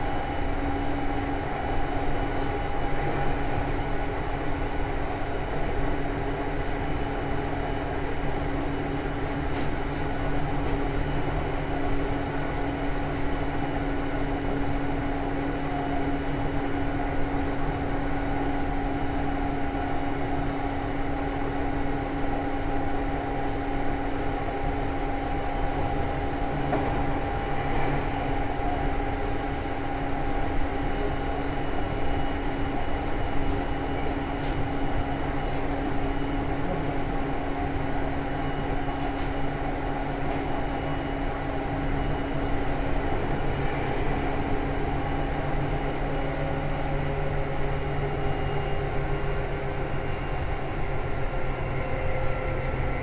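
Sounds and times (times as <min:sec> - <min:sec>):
train motor hum: 0:00.0 - 0:53.0
wheels rumbling on rail: 0:00.0 - 0:53.0.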